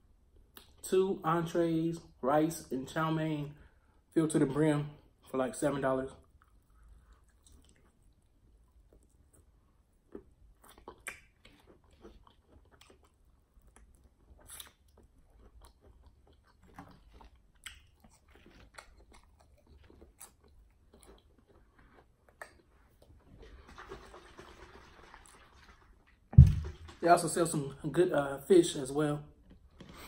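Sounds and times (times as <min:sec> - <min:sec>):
chewing crispy chicken: 0:06.2 - 0:26.2.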